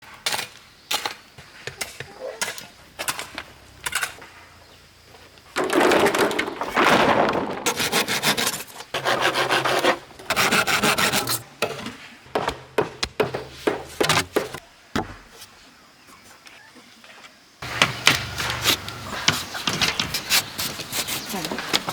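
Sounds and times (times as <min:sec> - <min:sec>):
sawing bamboo: 0:07.7 - 0:11.4, 0:17.6 - 0:21.9.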